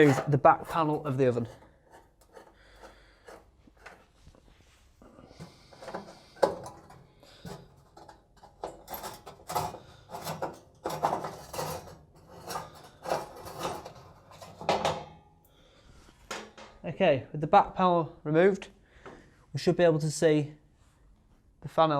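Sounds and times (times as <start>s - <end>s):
screwdriver scraping and clicking: 0.0s - 4.1s, 5.8s - 14.8s.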